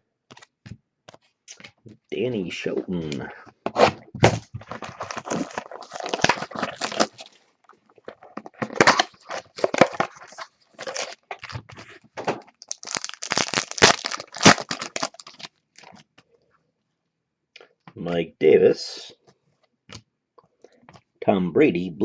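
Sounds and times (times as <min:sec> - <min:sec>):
packaging crinkling: 0:04.2 - 0:16.0.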